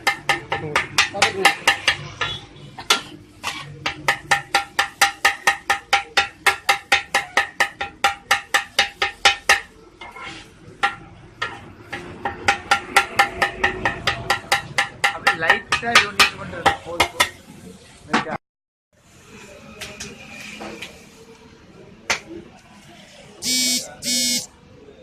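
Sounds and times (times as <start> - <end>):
metal spatulas clanging on griddle: 0.0 - 17.4.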